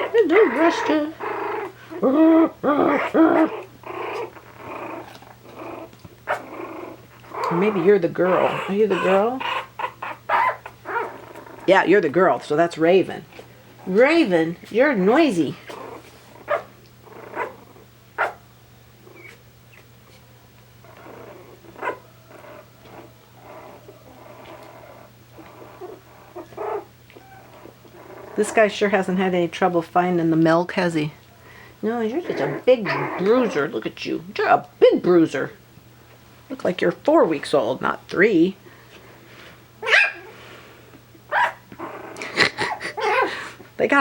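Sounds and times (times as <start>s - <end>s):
puppy yelping: 0.0s - 11.8s, 15.2s - 18.4s, 19.0s - 20.2s, 20.8s - 28.6s, 32.2s - 33.7s, 39.8s - 40.3s, 41.3s - 43.4s
puppies grumbling: 0.0s - 34.4s, 38.9s - 44.0s.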